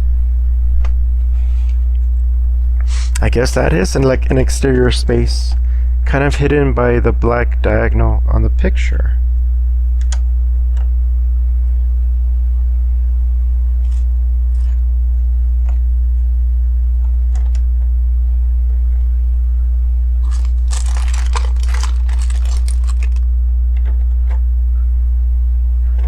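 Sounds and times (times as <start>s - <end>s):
low electrical hum: 0.0s - 26.0s
plastic pieces rustling and clattering: 20.2s - 23.2s.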